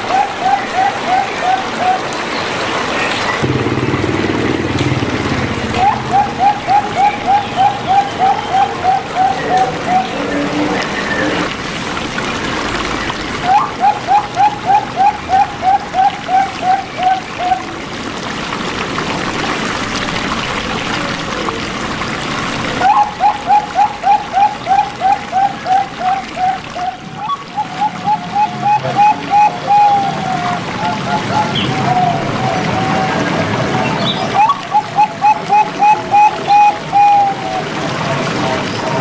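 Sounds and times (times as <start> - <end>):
dove cooing: 0.0 - 2.3, 3.4 - 11.6, 13.4 - 17.7, 22.8 - 37.8.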